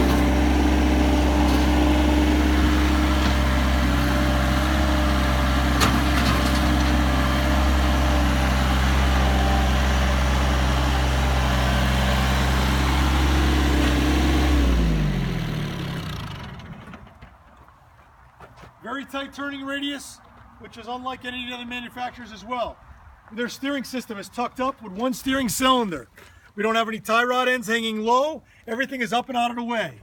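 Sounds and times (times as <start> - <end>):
tractor diesel engine running: 0.0 - 17.4.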